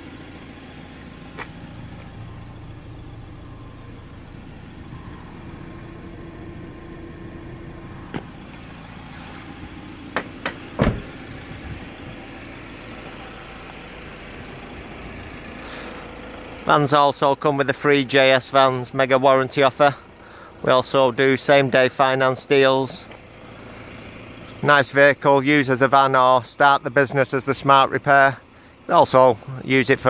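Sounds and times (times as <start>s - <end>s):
engine idling: 0.0s - 30.0s
heavy thump: 8.1s - 8.4s, 10.2s - 11.2s.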